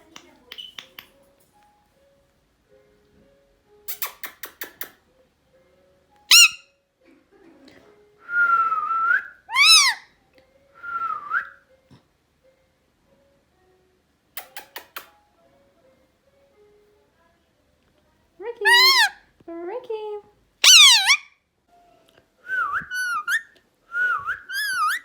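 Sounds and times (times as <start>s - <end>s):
sharp clicks: 3.9s - 5.0s, 14.4s - 15.2s
parrot whistling: 6.3s - 6.7s, 9.0s - 10.0s, 18.6s - 19.2s, 20.6s - 21.3s, 22.5s - 25.0s.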